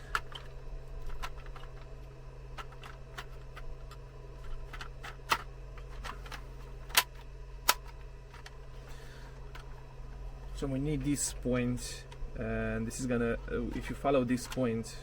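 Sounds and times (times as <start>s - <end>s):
plastic parts clicking and tapping: 0.0s - 1.9s, 2.5s - 8.6s
low electrical hum: 0.0s - 15.0s.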